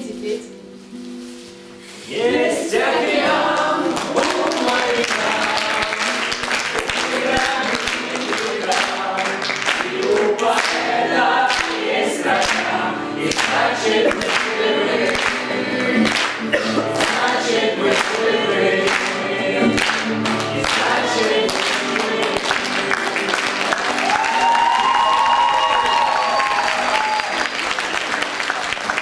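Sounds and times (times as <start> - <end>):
choir singing: 2.0 - 23.8.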